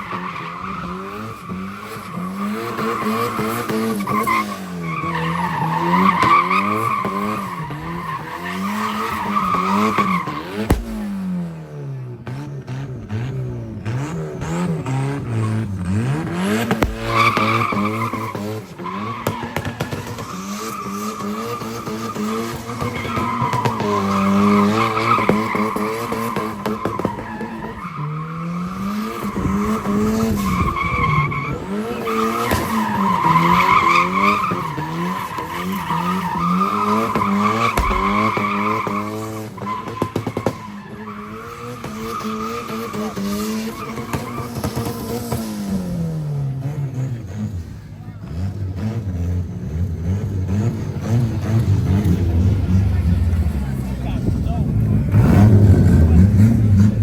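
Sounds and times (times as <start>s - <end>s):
car engine revving: 0.0s - 57.0s
tyres squealing: 30.8s - 44.6s.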